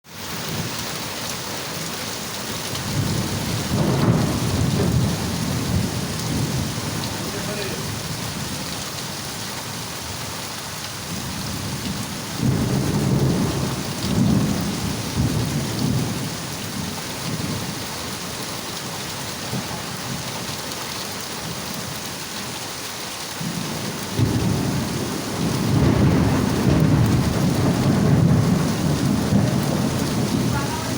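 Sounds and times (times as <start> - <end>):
heavy rain pouring: 0.0 - 30.9
thunder rumbling: 2.8 - 8.7, 11.1 - 17.8, 23.4 - 30.9.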